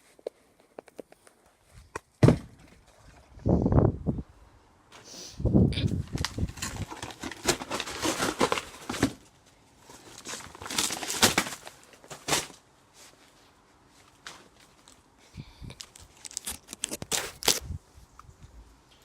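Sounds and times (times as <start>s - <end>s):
cardboard box being crushed: 2.2s - 2.8s, 6.1s - 9.3s, 9.9s - 12.6s.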